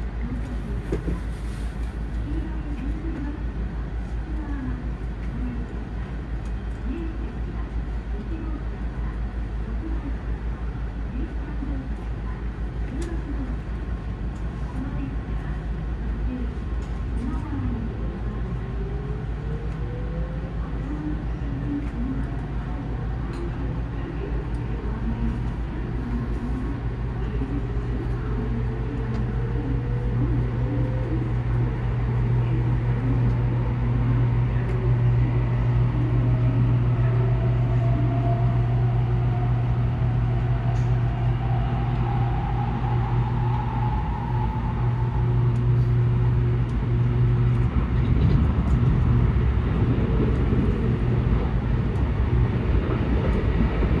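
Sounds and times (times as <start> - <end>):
train cabin rumble and hum: 0.0 - 54.0
faint rising whine: 35.6 - 54.0.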